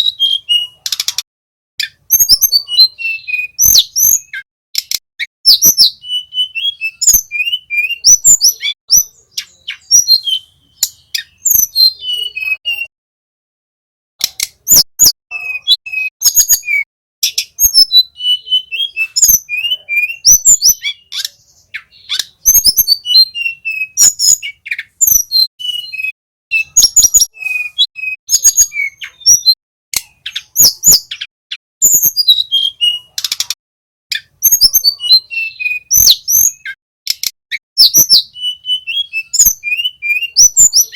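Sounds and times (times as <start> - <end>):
small songbird singing: 0.0 - 12.9, 14.2 - 40.9
sharp clicks: 0.8 - 1.2, 4.8 - 5.0, 14.2 - 14.7, 33.2 - 33.6, 37.1 - 37.4.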